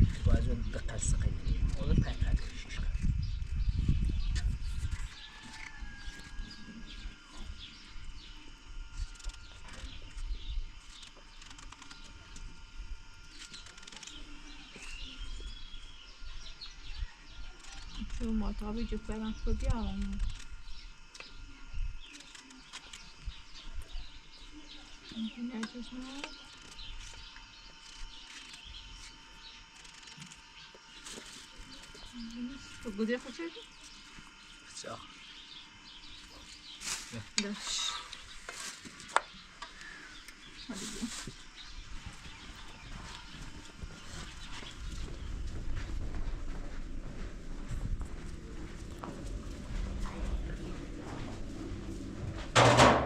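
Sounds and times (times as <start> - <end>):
faint steady hum: 0.0 - 53.0
small birds chirping: 0.1 - 52.4
low background rumble: 42.3 - 53.0.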